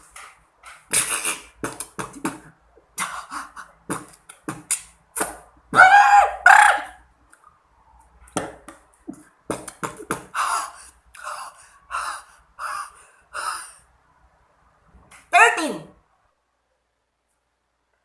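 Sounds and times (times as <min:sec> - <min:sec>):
mouth pops and clicks: 0:00.7 - 0:03.1, 0:03.9 - 0:05.5
child beatboxing: 0:00.9 - 0:05.8.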